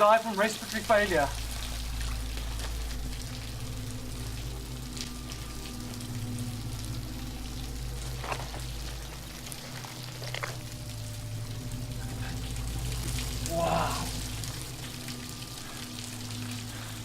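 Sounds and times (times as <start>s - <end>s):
waterfall rushing: 0.0s - 3.2s, 7.1s - 17.0s.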